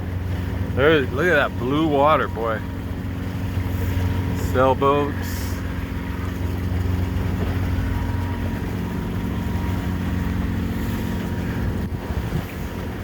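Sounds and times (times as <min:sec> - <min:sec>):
boat diesel engine running: 0:00.0 - 0:13.0
water noise: 0:00.0 - 0:13.0
wind noise: 0:11.0 - 0:13.0.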